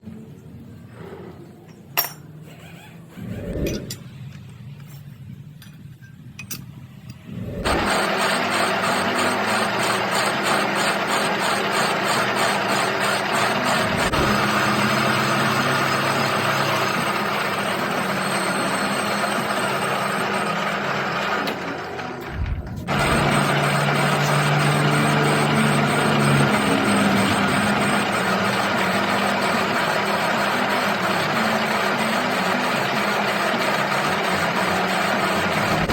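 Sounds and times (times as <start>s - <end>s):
metal lathe running: 7.4s - 35.9s.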